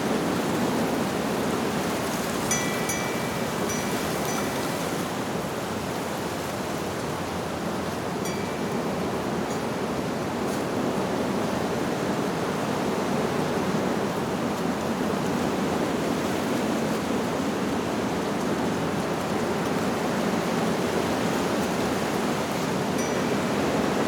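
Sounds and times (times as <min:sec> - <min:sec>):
wind blowing through leaves: 0:00.0 - 0:24.0
wind chime tinkle: 0:02.4 - 0:05.2, 0:08.2 - 0:09.7, 0:23.0 - 0:24.0.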